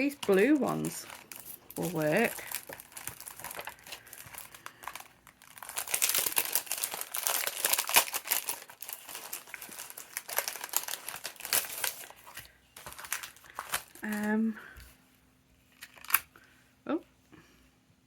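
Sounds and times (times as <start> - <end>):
paper crinkling and rustling: 0.0 - 14.4, 15.7 - 16.3.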